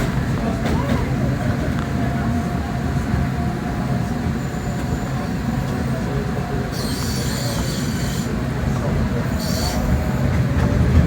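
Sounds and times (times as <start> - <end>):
train running low rumble: 0.0 - 11.0
high-pitched wheel squeal: 6.7 - 8.4, 9.3 - 10.0.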